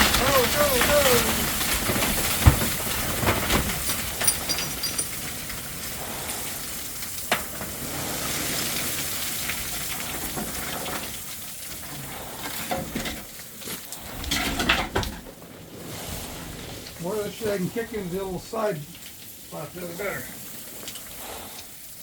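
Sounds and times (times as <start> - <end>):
stones clattering: 0.0 - 5.3.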